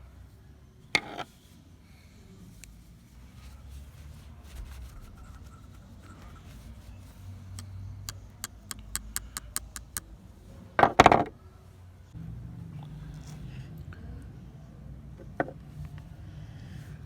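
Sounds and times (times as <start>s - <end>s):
sharp clicks: 7.6s - 10.0s.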